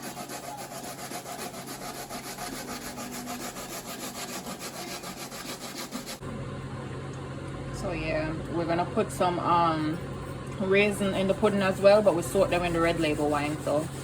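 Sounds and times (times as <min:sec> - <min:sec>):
vegetables scraping on metal grater: 0:00.0 - 0:06.2, 0:10.0 - 0:14.0.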